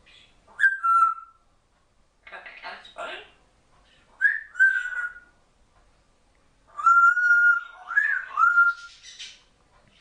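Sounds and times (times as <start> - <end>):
parrot whistling: 0.6 - 1.4, 4.2 - 5.3, 6.7 - 9.4.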